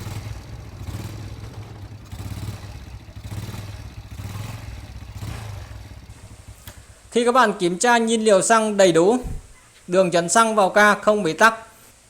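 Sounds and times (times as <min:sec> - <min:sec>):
motorcycle engine revving unevenly: 0:00.0 - 0:07.4.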